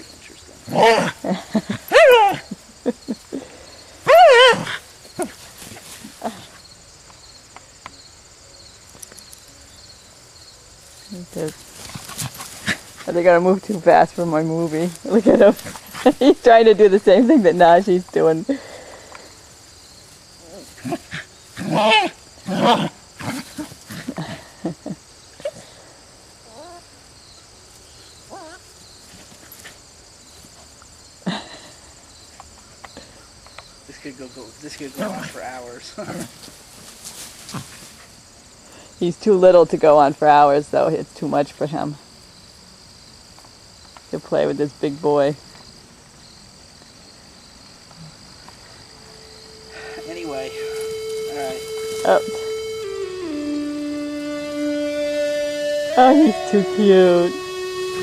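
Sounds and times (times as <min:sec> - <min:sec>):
crickets chirring: 0:00.0 - 0:58.0
dog yelping: 0:00.7 - 0:02.6, 0:04.0 - 0:05.4, 0:20.5 - 0:23.4
dog whining yelps: 0:01.9 - 0:02.6, 0:04.1 - 0:04.8
dogs play-growling: 0:11.7 - 0:13.1, 0:20.4 - 0:24.5, 0:34.9 - 0:36.6.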